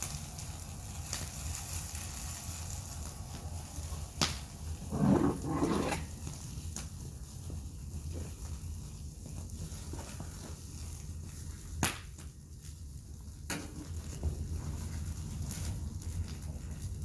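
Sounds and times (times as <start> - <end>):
fire crackling pops: 0.0 - 5.3, 10.9 - 17.0
wood fire rumbling: 0.0 - 17.0.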